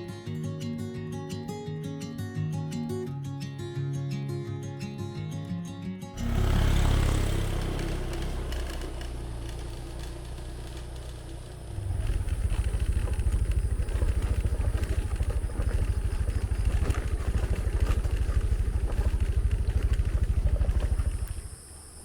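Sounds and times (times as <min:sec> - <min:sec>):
motorcycle engine running: 0:06.2 - 0:22.0.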